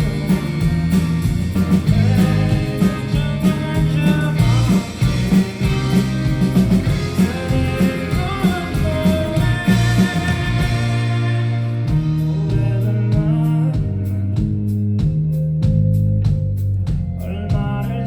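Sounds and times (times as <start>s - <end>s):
indie rock band playing live: 0.0s - 18.0s
person singing: 1.8s - 5.0s, 6.8s - 14.4s.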